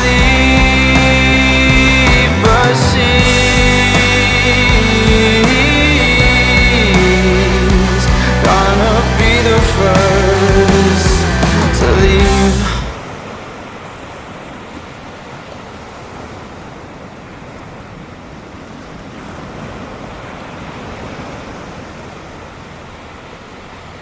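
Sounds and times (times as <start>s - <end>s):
ocean surf washing onto beach: 12.2s - 24.0s.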